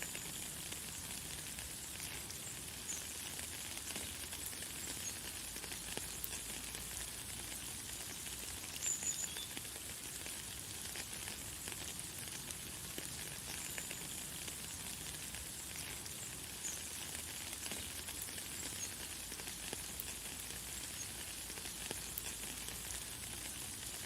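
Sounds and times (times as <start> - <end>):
light rain hissing: 0.0 - 24.0
faint high bird chirps: 8.8 - 9.6.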